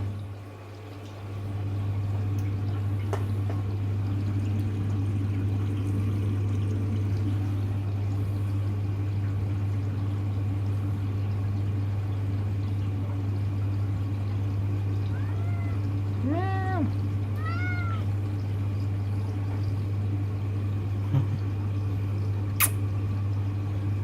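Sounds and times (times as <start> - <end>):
washing machine humming: 0.0 - 24.0
cat meowing: 15.1 - 18.1.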